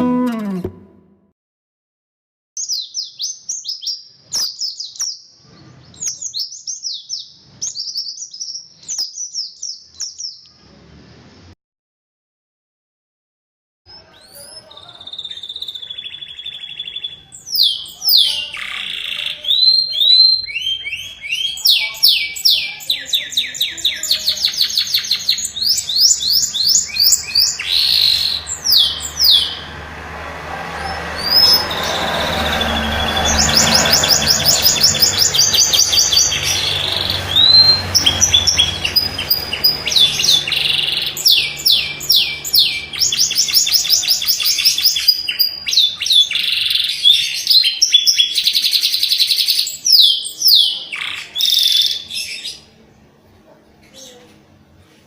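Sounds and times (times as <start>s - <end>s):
canary singing: 0.0s - 1.2s, 13.9s - 29.9s, 30.8s - 52.8s.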